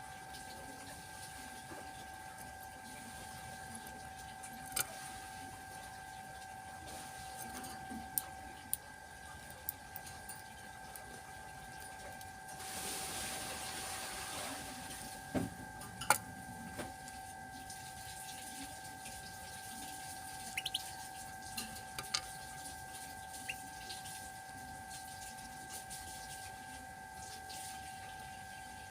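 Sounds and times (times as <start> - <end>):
water trickling: 0.1 - 14.3, 16.9 - 26.5.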